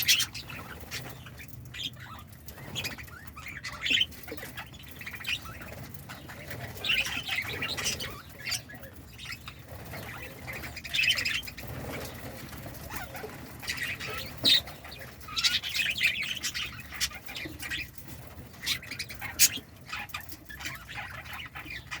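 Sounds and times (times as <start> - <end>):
budgerigars chirping: 0.0 - 22.0
wings fluttering: 9.4 - 19.6.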